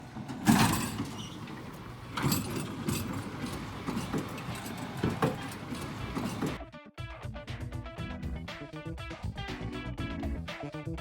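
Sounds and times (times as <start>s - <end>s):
clatters and rustles: 0.0s - 6.6s
steady background noise: 0.0s - 6.6s.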